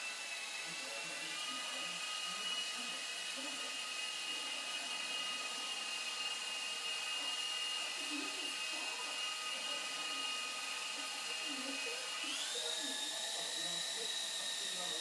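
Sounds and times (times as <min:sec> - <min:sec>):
high-pitched mechanical whine: 0:07.2 - 0:15.0.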